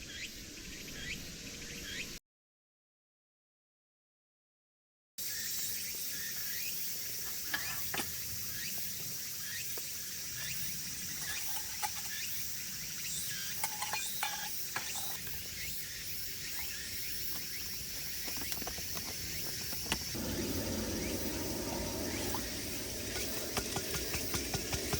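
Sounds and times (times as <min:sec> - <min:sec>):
steady hiss: 0:20.0 - 0:24.9.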